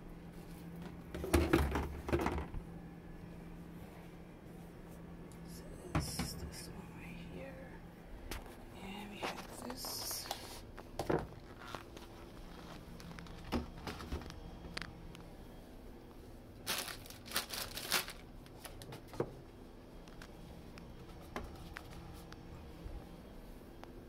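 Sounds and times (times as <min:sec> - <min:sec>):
plastic packaging crinkling: 0:09.3 - 0:14.9, 0:16.6 - 0:19.2.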